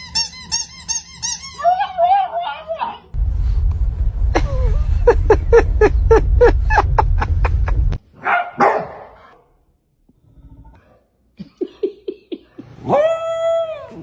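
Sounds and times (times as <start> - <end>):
dog high cries: 0.1 - 3.1
low rumble: 3.1 - 8.1
dog barking: 8.2 - 9.4.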